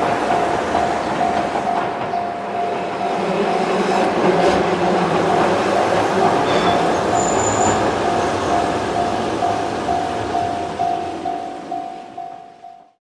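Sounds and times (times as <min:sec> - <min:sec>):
train wheels rumbling on bridge: 0:00.0 - 0:12.7
level crossing bell dinging: 0:06.5 - 0:12.9.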